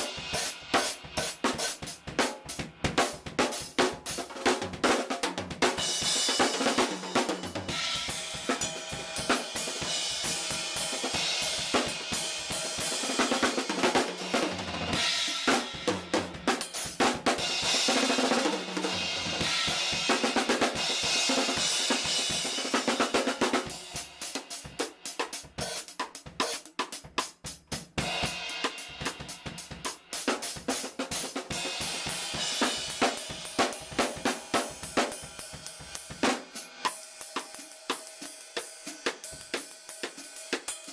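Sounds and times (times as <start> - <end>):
bass drum: 0.0 - 24.8
snare drum: 0.0 - 40.9
cymbals washing: 5.8 - 15.9
hi-hat: 23.3 - 40.9.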